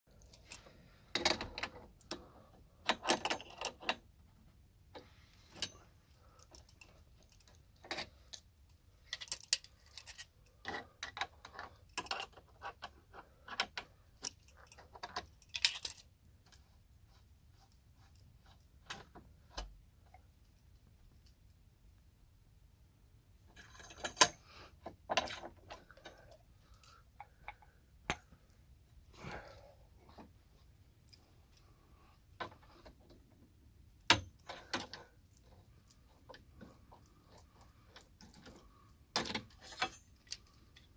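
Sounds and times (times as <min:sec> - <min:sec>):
metal parts and tools clinking: 0:02.8 - 0:04.0, 0:05.4 - 0:16.1, 0:23.5 - 0:24.5, 0:34.0 - 0:40.9.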